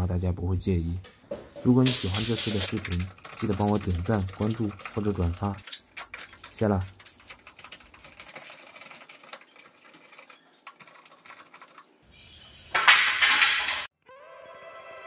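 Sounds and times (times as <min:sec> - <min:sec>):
rapid light clicks and taps: 0:02.4 - 0:11.9
music: 0:14.0 - 0:15.0.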